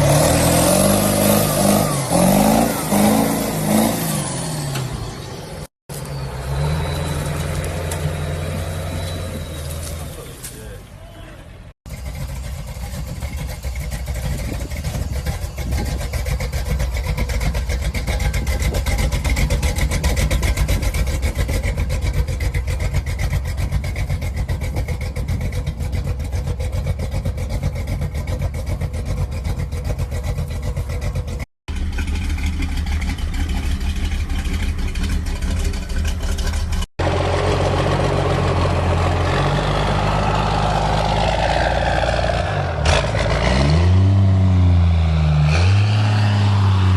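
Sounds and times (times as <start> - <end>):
old truck engine running: 11.9 - 42.1.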